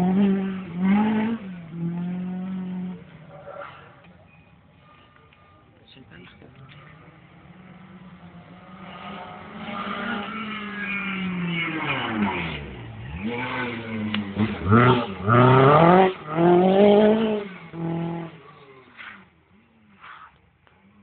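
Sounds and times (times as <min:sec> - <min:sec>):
rally car engine revving: 0:00.0 - 0:04.2, 0:06.2 - 0:21.0.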